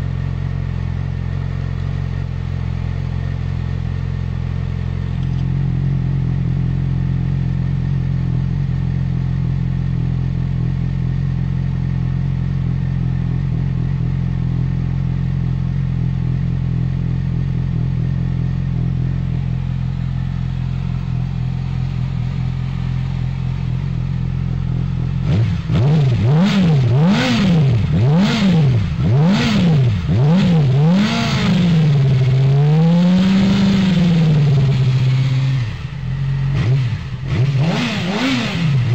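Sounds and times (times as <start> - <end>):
motorcycle engine idling: 0.0 - 38.9
motorcycle engine revving: 0.0 - 38.9.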